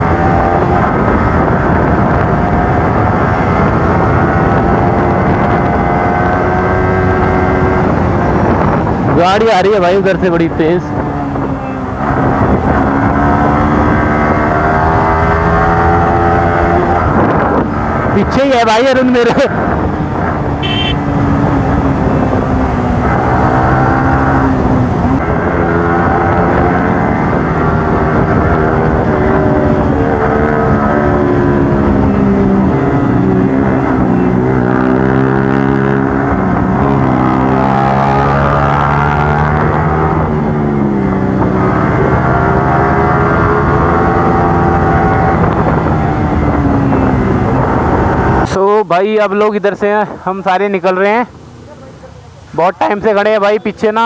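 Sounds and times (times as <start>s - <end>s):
motorcycle engine and exhaust: 0.0s - 48.6s
motorcycle engine running: 19.6s - 37.0s.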